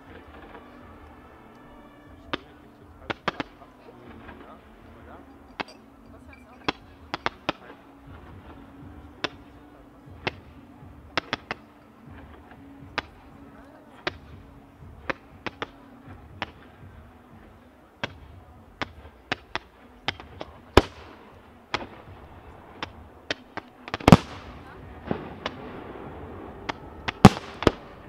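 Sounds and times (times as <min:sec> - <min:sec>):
fireworks bangs: 0:18.0 - 0:28.0.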